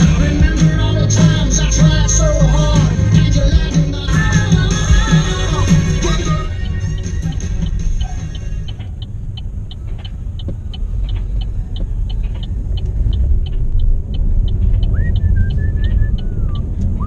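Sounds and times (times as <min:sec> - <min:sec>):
regular high ticking: 0:00.0 - 0:17.0
vehicle road rumble: 0:00.0 - 0:17.0
gliding whistle-like tones: 0:14.8 - 0:17.0.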